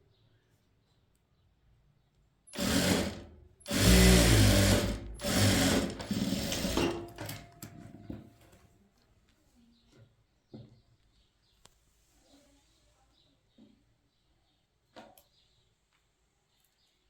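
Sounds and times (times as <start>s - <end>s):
sewing machine stitching: 2.5s - 7.4s.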